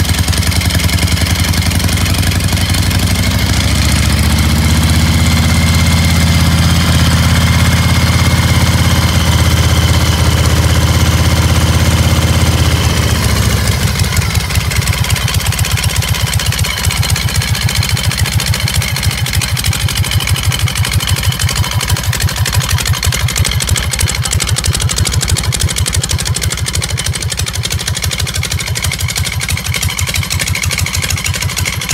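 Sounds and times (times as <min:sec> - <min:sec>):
motorcycle engine idling: 0:00.0 - 0:31.9.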